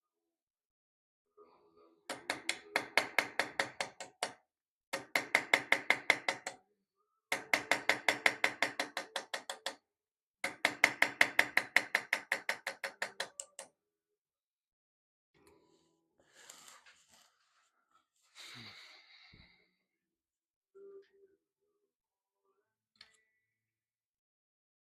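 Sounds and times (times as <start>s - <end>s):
small hammer tapping metal: 2.1s - 4.4s, 5.0s - 6.6s, 7.3s - 9.8s, 10.4s - 13.7s.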